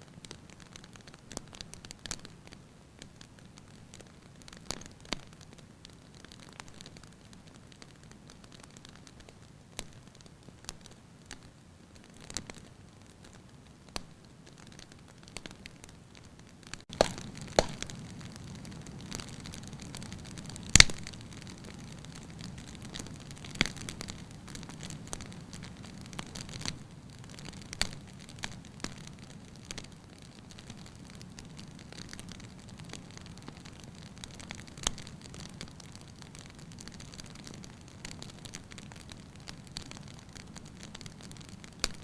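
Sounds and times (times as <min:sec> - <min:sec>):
wood fire crackling: 0:00.0 - 0:42.0
flames hissing and rumbling: 0:15.4 - 0:42.0
sharp fire pops: 0:16.7 - 0:29.9, 0:30.5 - 0:42.0.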